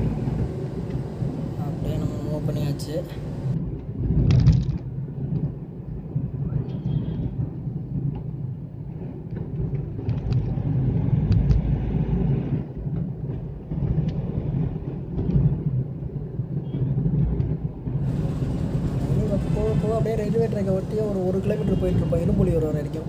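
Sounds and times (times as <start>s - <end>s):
car engine rumble: 0.0s - 3.6s, 17.8s - 23.0s
tyres on road: 0.0s - 3.6s, 18.0s - 23.0s.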